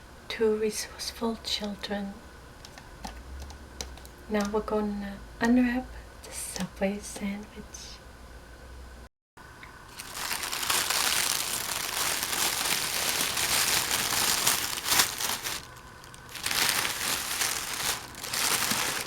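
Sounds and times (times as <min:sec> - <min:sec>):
sandwich wrapper crinkling: 0:09.9 - 0:19.0.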